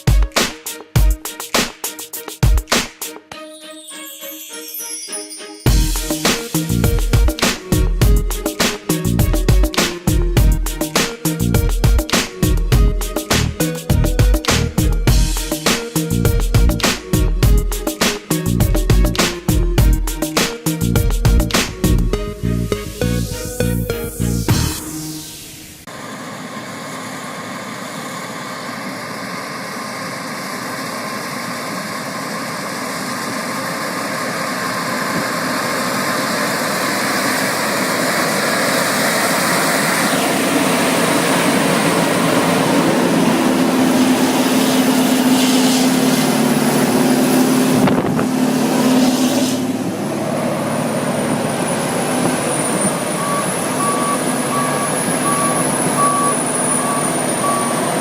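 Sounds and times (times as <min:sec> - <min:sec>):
heavy diesel machine running: 0:05.7 - 0:58.0
beeping warning alarm: 0:52.5 - 0:58.0.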